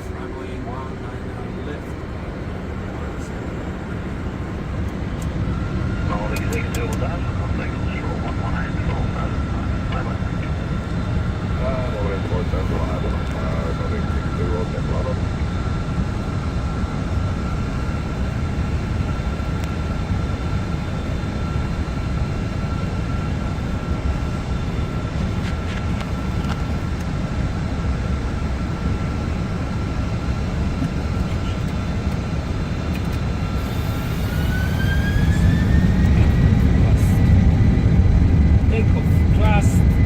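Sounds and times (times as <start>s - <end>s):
jet engines rumbling and whining: 0.0s - 40.0s.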